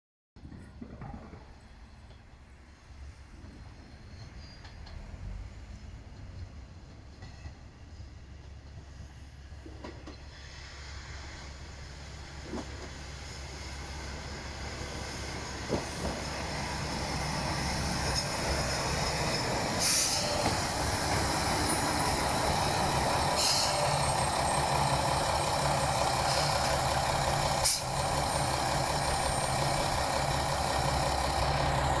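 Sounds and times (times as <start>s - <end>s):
train engine hum: 0.4s - 32.0s
train wheel noise: 0.4s - 32.0s
air hiss bursts: 19.6s - 24.3s, 25.6s - 28.4s.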